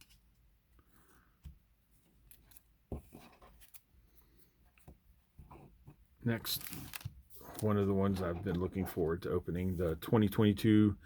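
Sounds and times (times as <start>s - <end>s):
trading cards clicking and rustling: 6.4s - 8.8s.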